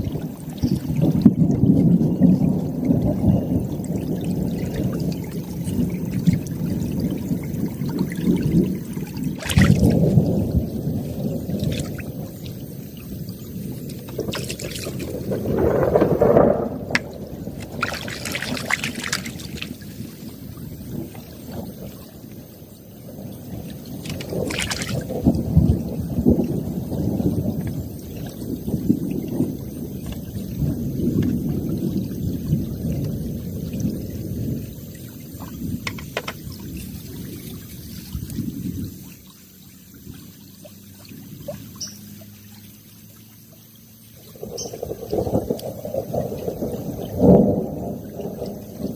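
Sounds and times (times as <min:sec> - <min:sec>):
water splashing against raft: 0:00.0 - 0:22.4, 0:23.2 - 0:31.8
crisp splashes: 0:00.0 - 0:32.0.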